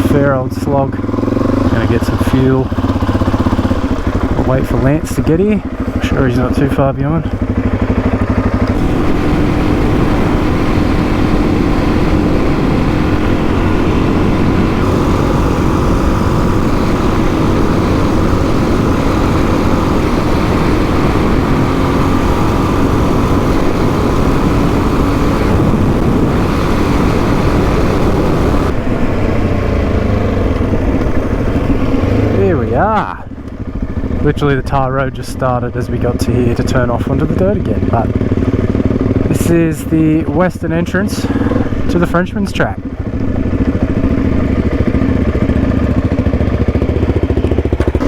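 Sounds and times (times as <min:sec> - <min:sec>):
dirt bike engine running: 0:00.0 - 0:48.0
wind noise: 0:08.7 - 0:33.3.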